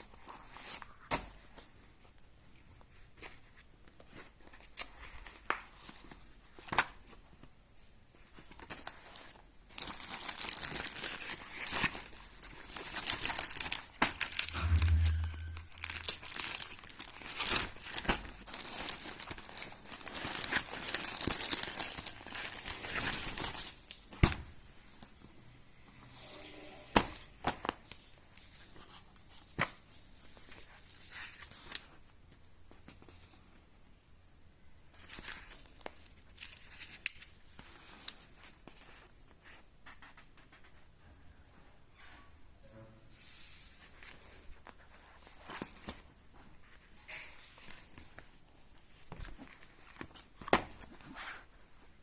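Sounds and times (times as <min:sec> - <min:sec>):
packaging tearing and crinkling: 0:09.7 - 0:15.0, 0:15.7 - 0:23.8.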